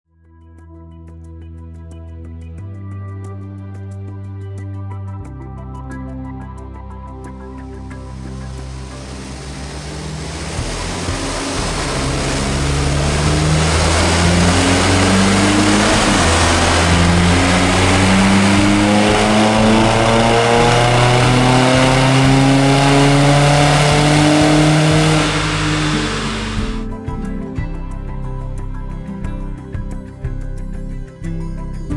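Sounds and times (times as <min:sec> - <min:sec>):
diesel engine revving under load: 0:08.0 - 0:26.9.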